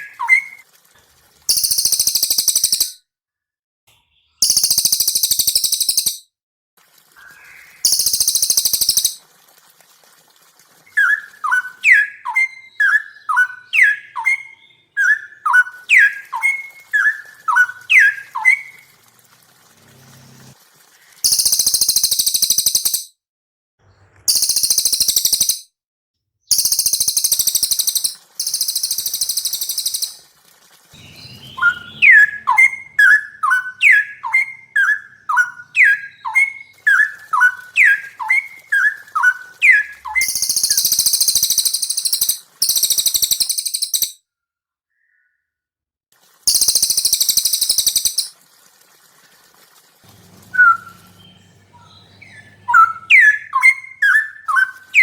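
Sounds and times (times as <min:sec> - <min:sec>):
high rapid buzzy bird trill: 0:00.0 - 0:00.7, 0:01.5 - 0:03.0, 0:04.4 - 0:06.2, 0:07.1 - 0:09.2, 0:10.8 - 0:23.1, 0:24.3 - 0:25.6, 0:26.5 - 0:44.2, 0:46.2 - 0:55.0
loud down-slurred whistled notes: 0:31.0 - 0:34.6, 0:50.5 - 0:51.5.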